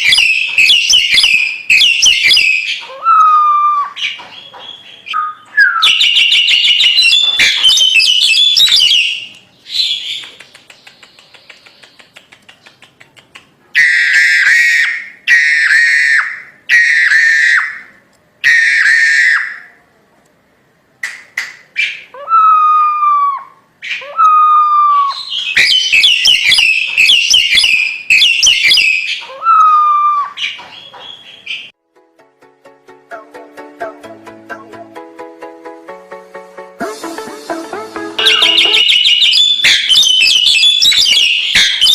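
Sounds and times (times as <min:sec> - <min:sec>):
myna whistled calls: 0:00.0 - 0:12.8, 0:13.8 - 0:19.7, 0:21.8 - 0:31.7, 0:38.2 - 0:41.9.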